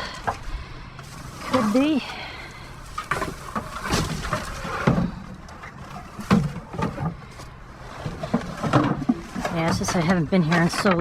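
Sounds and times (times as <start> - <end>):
rustling: 0.1 - 11.0
junk knocking and clattering: 8.0 - 11.0.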